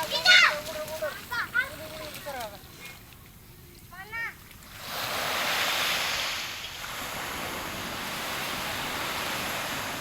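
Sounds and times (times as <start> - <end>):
ocean waves breaking on beach: 4.6 - 10.0.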